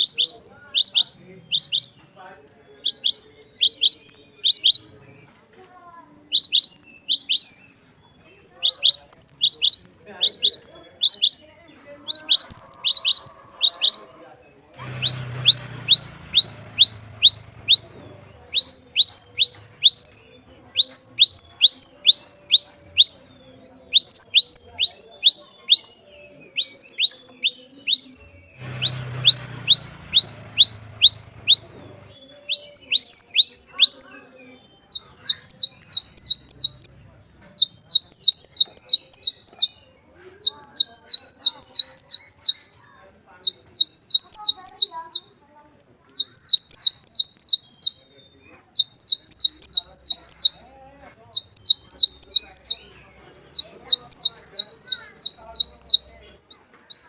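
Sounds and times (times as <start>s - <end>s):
bird singing high notes: 14.9s - 37.0s.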